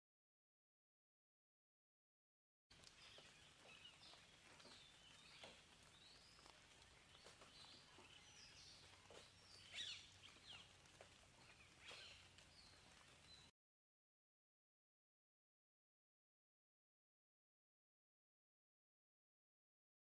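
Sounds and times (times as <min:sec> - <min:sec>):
birds chirping and whistling: 0:03.0 - 0:10.8, 0:11.4 - 0:13.5.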